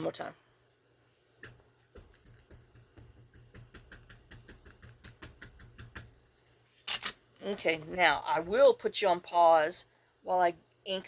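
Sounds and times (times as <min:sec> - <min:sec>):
ink pad tapping rubber stamp: 0:01.4 - 0:06.2.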